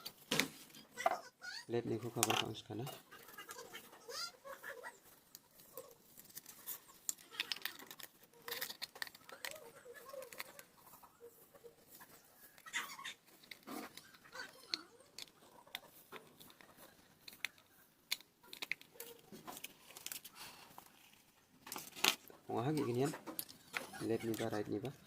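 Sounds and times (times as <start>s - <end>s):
plastic headphone parts clicking: 2.2s - 2.6s, 6.2s - 10.7s, 13.4s - 20.3s.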